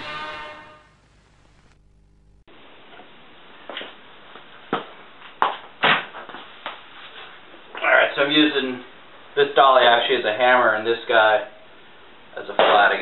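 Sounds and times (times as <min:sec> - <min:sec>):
faint low hum: 0:00.0 - 0:03.3.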